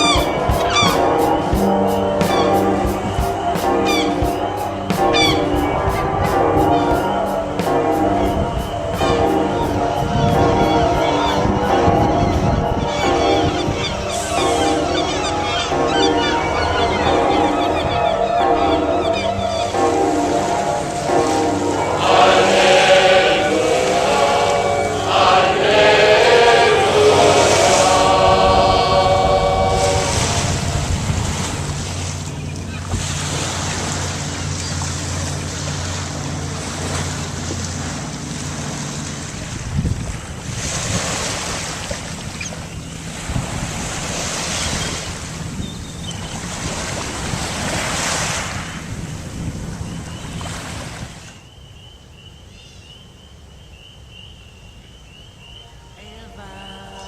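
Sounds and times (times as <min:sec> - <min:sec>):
seagull cries: 0:00.0 - 0:06.0, 0:08.5 - 0:20.9
gulls calling: 0:00.0 - 0:39.3
surf rushing: 0:00.0 - 0:51.3
wind: 0:00.0 - 0:57.0.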